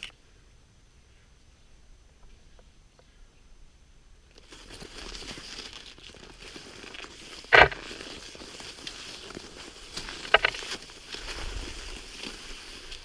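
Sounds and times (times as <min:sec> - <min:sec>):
crinkling crunching noise: 0:00.0 - 0:00.2, 0:04.2 - 0:13.0
sharp loud crunch: 0:07.4 - 0:08.1, 0:09.9 - 0:11.6.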